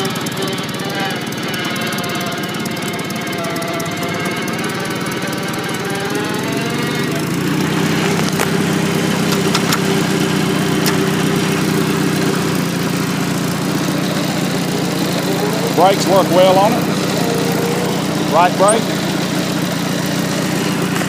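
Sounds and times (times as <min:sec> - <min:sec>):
tractor engine running: 0:00.0 - 0:21.0
sharp clicks: 0:09.3 - 0:10.0.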